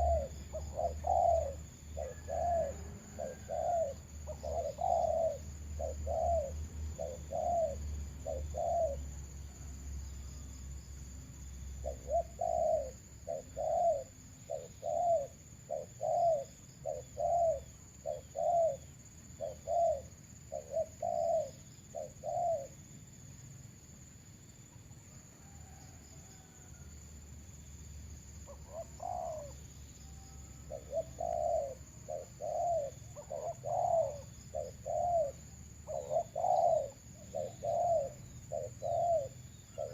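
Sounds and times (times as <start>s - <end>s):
doves cooing: 0.0s - 9.6s, 11.8s - 22.8s, 28.5s - 39.9s.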